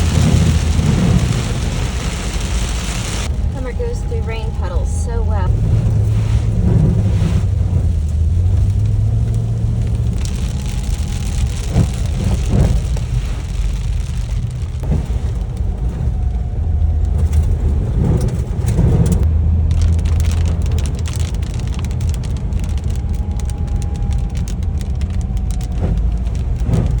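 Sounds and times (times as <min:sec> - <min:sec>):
rain hissing on wet road: 0:00.0 - 0:27.0
vehicle engine and tyres rumbling: 0:00.0 - 0:27.0
water splashing through puddles: 0:00.0 - 0:27.0.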